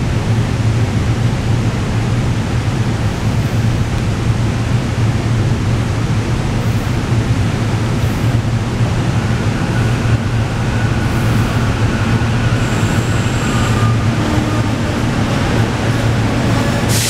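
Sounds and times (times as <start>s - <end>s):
electric train rumbling: 0.0s - 17.0s
faint high whine: 9.0s - 15.3s.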